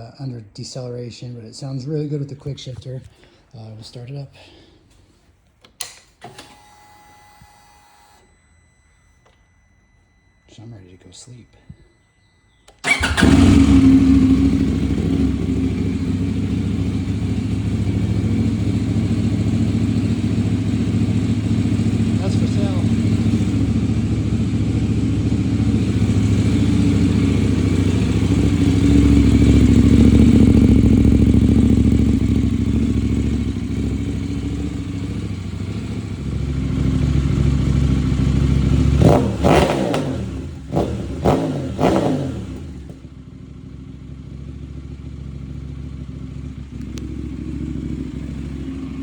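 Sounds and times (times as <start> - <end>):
motorcycle engine idling and revving: 12.8 - 49.0.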